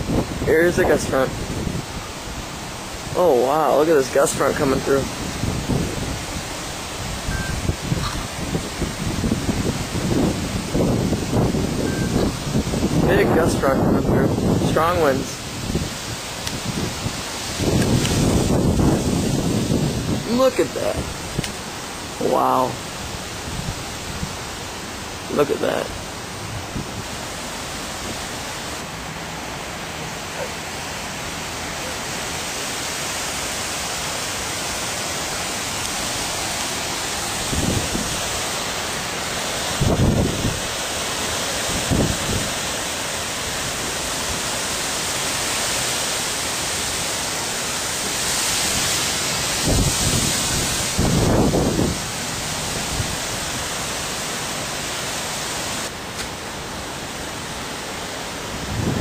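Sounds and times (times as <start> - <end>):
strong wind rushing: 0.0 - 24.6, 25.3 - 28.9, 37.2 - 38.4, 39.7 - 40.8, 41.7 - 42.6, 48.2 - 53.5, 58.5 - 59.0
wind gusts buffeting microphone: 0.0 - 54.3, 58.2 - 59.0.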